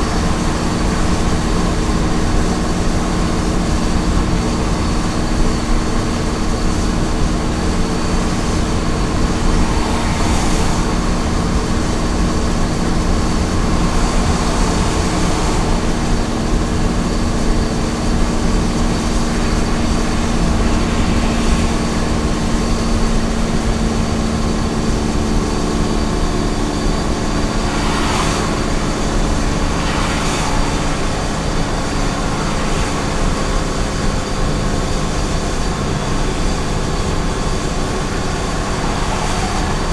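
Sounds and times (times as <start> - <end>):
road noise: 0.0 - 39.9
truck engine cruising: 0.0 - 39.9.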